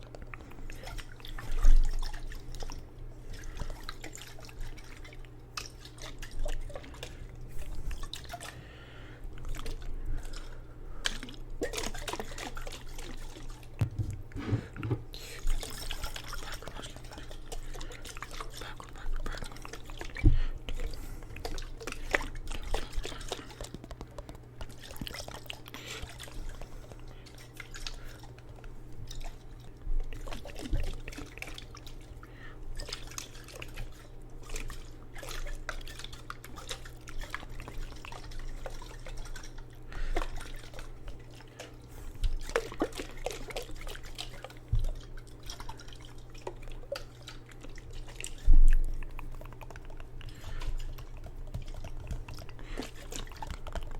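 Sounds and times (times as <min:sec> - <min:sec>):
handling thumps: 0:13.8 - 0:15.1.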